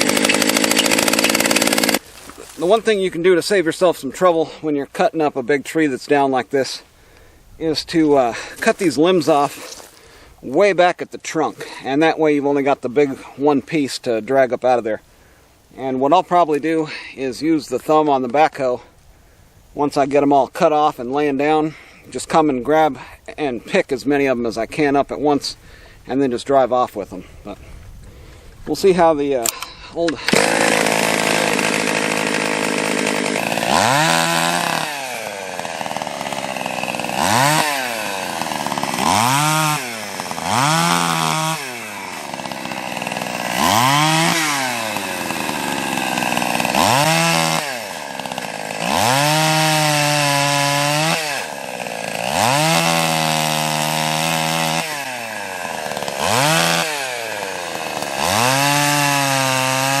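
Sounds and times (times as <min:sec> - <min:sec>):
chainsaw revving while cutting: 0:00.0 - 0:02.8, 0:30.3 - 1:00.0.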